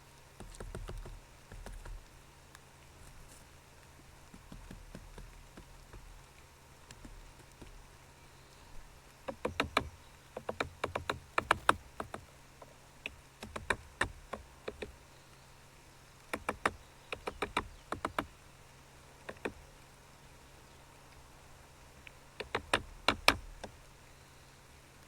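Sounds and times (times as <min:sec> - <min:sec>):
bird tapping on camera housing: 0:09.4 - 0:12.2.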